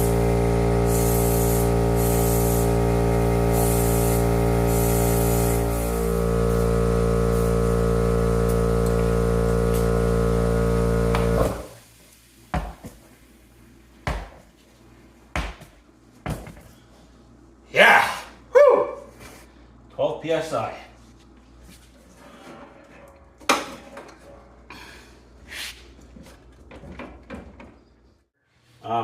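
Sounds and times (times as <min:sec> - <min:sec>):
air hissing into tire: 0:00.0 - 0:08.6
air compressor running: 0:00.0 - 0:12.0.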